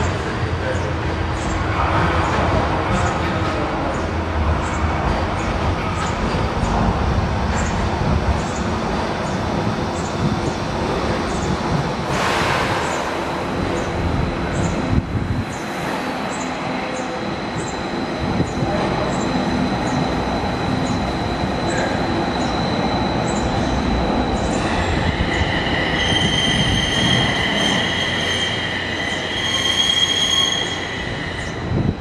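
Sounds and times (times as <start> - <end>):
train wheels rumbling: 0.0 - 32.0
high-pitched brake squeal: 24.4 - 31.8.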